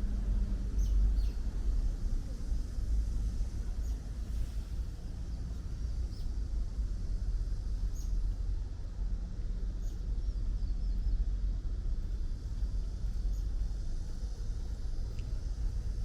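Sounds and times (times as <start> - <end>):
city traffic rumble: 0.0 - 16.0
small birds chirping: 0.7 - 1.5, 3.8 - 4.1, 5.2 - 6.4, 7.7 - 8.4, 9.5 - 15.3.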